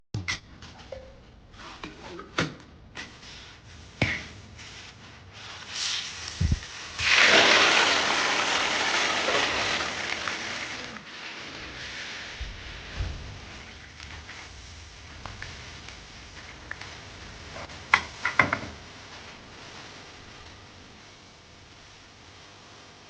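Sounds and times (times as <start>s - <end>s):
hot oil sizzling: 5.8s - 22.8s.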